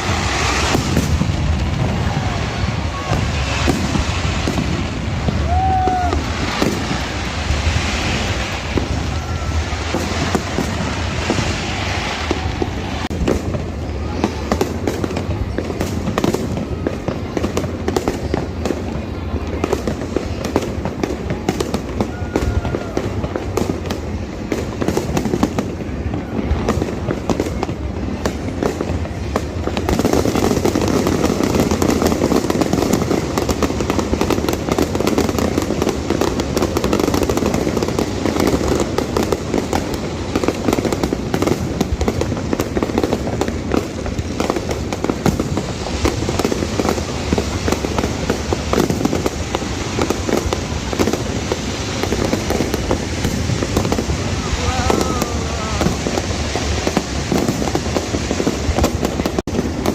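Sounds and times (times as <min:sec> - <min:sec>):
fireworks bursting and crackling: 0:00.0 - 0:59.9.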